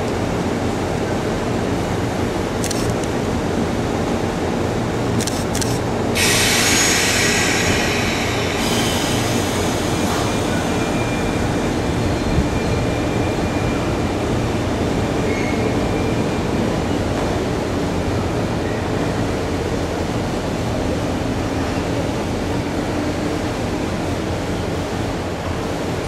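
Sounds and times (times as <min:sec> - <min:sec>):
loud hiss: 0:06.2 - 0:11.1
train wheels rumbling: 0:06.2 - 0:25.0.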